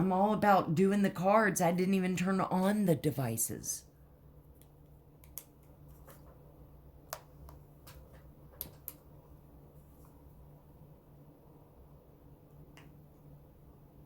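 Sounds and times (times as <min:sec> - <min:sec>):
low steady hum: 0:00.0 - 0:14.0
faint sharp clicks and taps: 0:04.5 - 0:06.4, 0:07.1 - 0:09.1.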